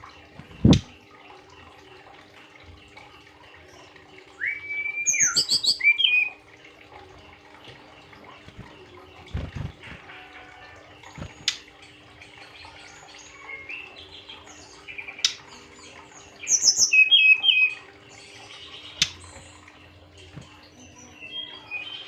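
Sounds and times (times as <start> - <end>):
bird chirping and twittering: 0.4 - 1.0, 4.4 - 6.4, 8.3 - 11.7, 12.4 - 22.0.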